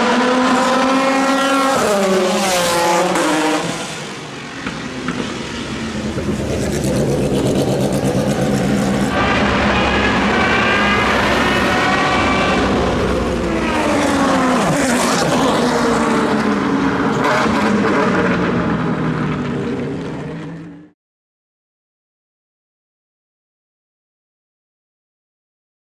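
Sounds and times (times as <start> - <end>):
car passing close by: 0.0 - 17.8
racing car engines revving: 0.0 - 20.9.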